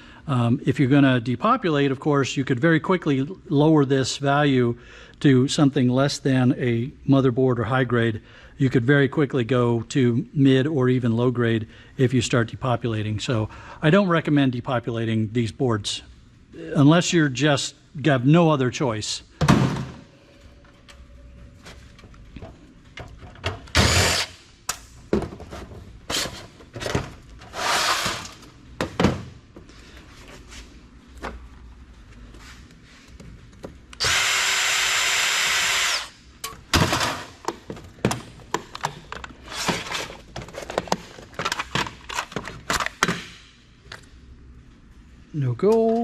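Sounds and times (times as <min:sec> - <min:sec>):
power driver running: 0:23.7 - 0:24.4, 0:34.0 - 0:36.2.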